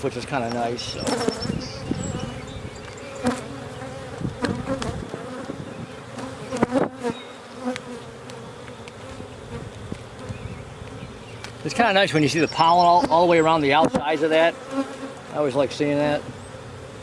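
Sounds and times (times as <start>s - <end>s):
bees buzzing around hive: 0.0s - 17.0s
single bee flying past: 0.8s - 11.8s, 13.7s - 17.0s.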